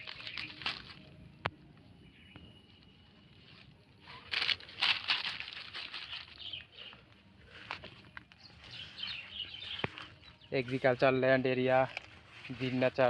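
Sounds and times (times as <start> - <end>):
plastic rustling and crinkling: 0.0 - 1.2, 3.4 - 11.0.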